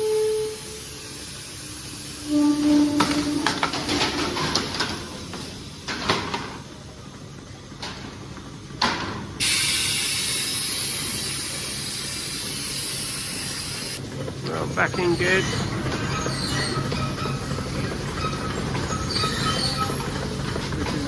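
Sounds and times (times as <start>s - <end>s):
clanks and rattles: 3.0s - 6.7s, 14.1s - 21.0s
steady hiss: 9.4s - 14.0s.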